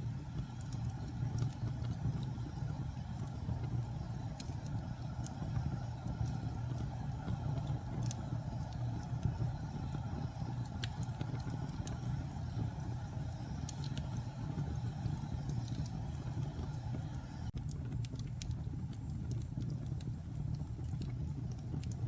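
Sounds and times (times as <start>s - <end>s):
fire burning in a fireplace: 0.0s - 22.0s
sharp fire crackles: 0.0s - 22.0s.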